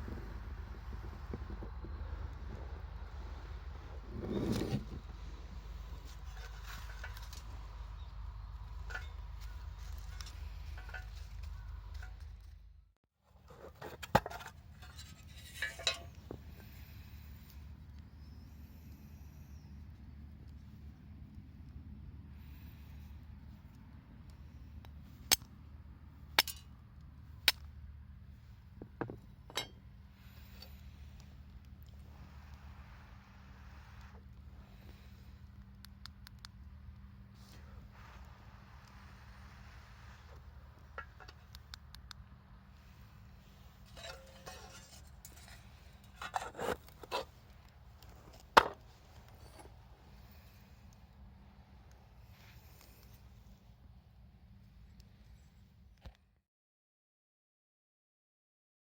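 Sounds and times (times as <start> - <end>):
wood rubbing scrapes: 0.7 - 7.9, 43.5 - 47.4.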